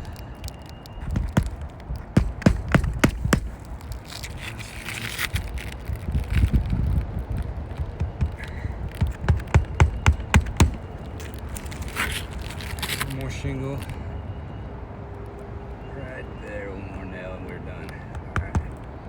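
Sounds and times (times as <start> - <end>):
wind rumble on microphone: 0.0 - 13.0
shingle scraping: 0.0 - 13.4, 18.0 - 18.9
hammer striking nail: 1.1 - 3.6, 7.9 - 10.8, 18.1 - 18.8.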